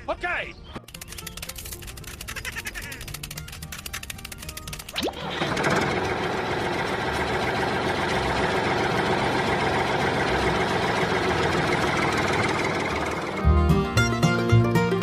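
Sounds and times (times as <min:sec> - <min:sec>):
engine running steadily: 0:03.0 - 0:15.0.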